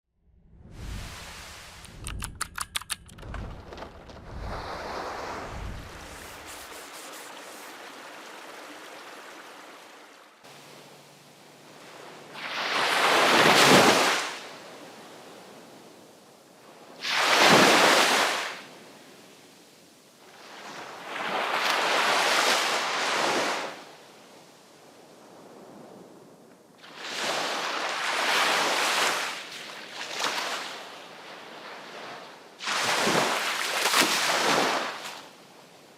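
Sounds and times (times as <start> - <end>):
sea waves breaking on shore: 0.7 - 1.9, 3.3 - 19.6, 20.2 - 35.9
clicks: 1.8 - 3.9.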